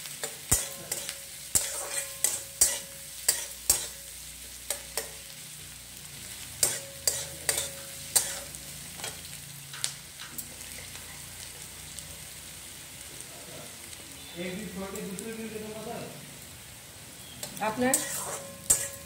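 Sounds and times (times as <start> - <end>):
onions sizzling in oil: 0.0 - 19.0
metal spatula scraping a pan: 0.1 - 5.3, 6.2 - 9.3, 17.7 - 19.0.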